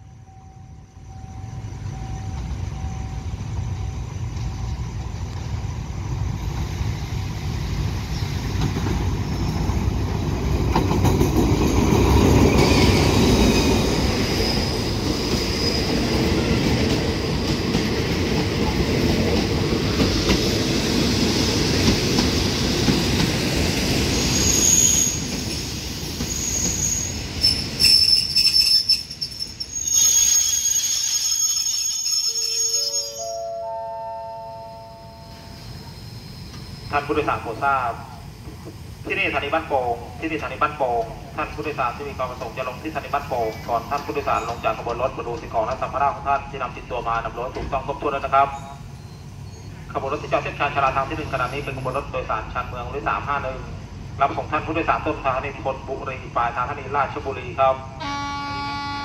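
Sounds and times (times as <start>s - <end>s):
train rumbling past: 0.0s - 59.0s
wheel and brake squeals: 11.8s - 16.6s, 24.0s - 33.5s, 35.3s - 37.2s, 48.4s - 49.9s.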